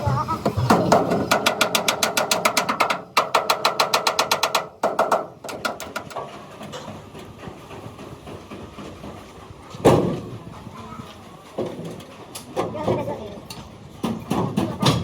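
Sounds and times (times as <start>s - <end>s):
low workshop noise: 0.0s - 15.0s
air hammer striking metal: 0.4s - 6.2s.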